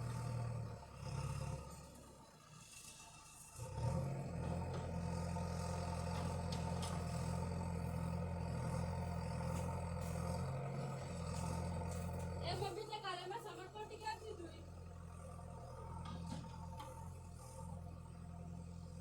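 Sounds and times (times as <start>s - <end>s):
tractor engine running: 3.2s - 19.0s.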